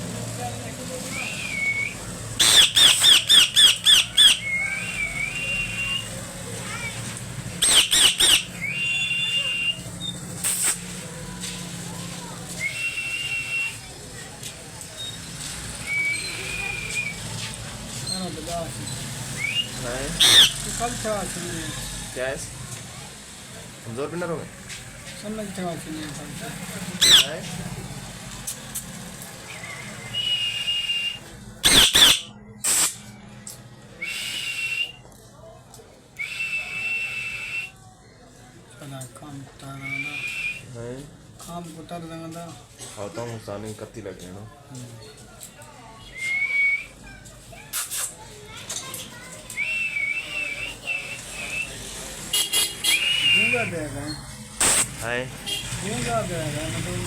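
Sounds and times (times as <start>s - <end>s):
parrot whistling: 1.0s - 7.0s, 7.6s - 10.2s, 12.6s - 13.8s, 15.8s - 17.2s, 19.4s - 20.6s, 27.0s - 27.4s, 29.5s - 32.9s, 34.0s - 35.0s, 36.2s - 37.7s, 39.8s - 40.6s, 49.6s - 51.8s, 52.8s - 53.7s
parrot squawk: 2.4s - 4.6s, 7.6s - 9.7s, 20.2s - 20.6s, 27.0s - 27.3s, 31.6s - 32.8s.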